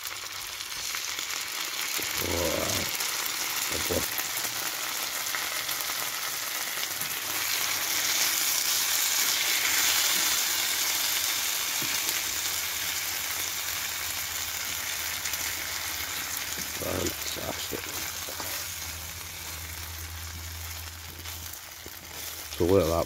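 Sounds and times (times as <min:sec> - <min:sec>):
vegetables sizzling in a pan: 0:00.0 - 0:23.0
wooden spatula stirring: 0:16.5 - 0:19.8, 0:20.7 - 0:23.0.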